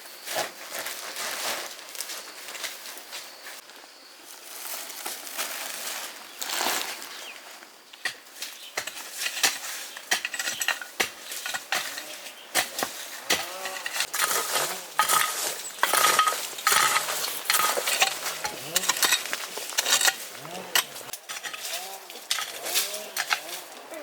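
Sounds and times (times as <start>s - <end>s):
sharp clinks and knocks: 13.6s - 23.6s.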